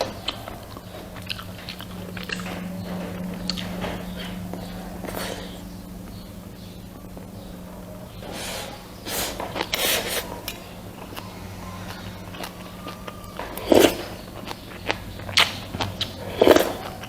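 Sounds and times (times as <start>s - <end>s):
person eating close up: 0.0s - 17.0s
steady low hum: 0.0s - 17.0s.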